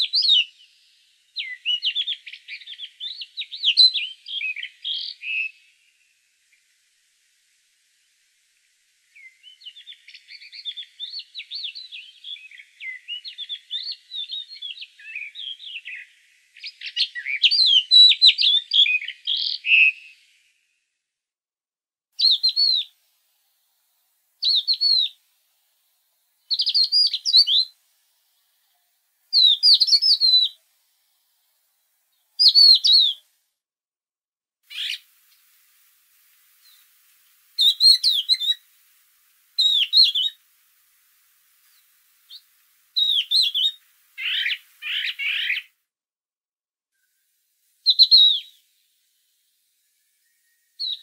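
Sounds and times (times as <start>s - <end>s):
songbird warbling: 22.2s - 22.9s, 24.4s - 25.2s, 26.5s - 27.7s, 28.8s - 30.6s, 32.2s - 33.2s, 34.7s - 35.6s, 37.6s - 38.7s, 39.6s - 40.4s, 41.6s - 45.7s, 47.9s - 48.6s, 50.2s - 51.0s
lower rough bird call: 34.7s - 35.6s, 41.6s - 45.8s.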